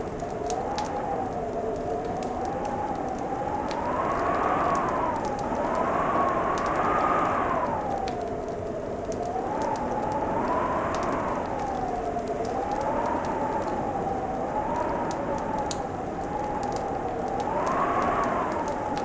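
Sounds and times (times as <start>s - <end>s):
fireplace crackling: 0.0s - 19.0s
whistling howling tone: 3.5s - 8.1s, 16.3s - 19.0s.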